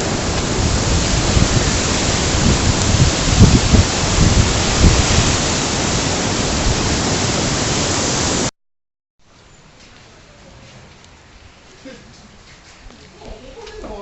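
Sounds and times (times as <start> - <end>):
flooding river rushing: 0.0 - 8.5.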